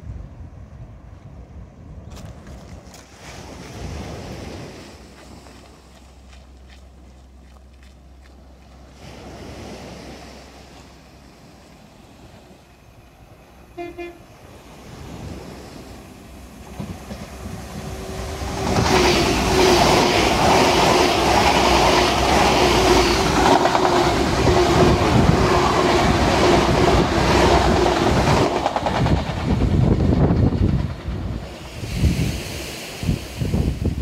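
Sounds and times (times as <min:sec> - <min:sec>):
train engine hum: 0:00.0 - 0:34.0
train wheels rushing on rails: 0:14.4 - 0:34.0.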